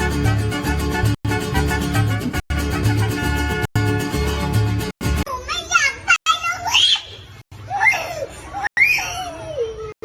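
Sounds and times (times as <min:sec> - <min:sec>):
pulsing bass: 0:00.0 - 0:05.2
plucked guitar music: 0:00.0 - 0:05.3.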